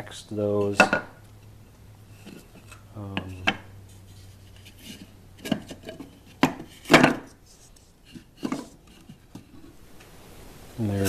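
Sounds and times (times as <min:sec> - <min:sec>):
wooden bars rubbing: 0:00.5 - 0:09.8
wooden bars knocking: 0:03.1 - 0:03.7.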